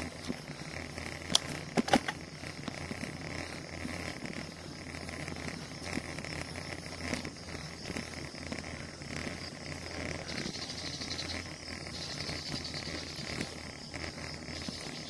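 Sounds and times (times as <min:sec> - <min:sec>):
high insect buzz: 0:00.0 - 0:15.0
insects chirring: 0:00.0 - 0:15.0
wind and bicycle road rumble: 0:00.0 - 0:15.0.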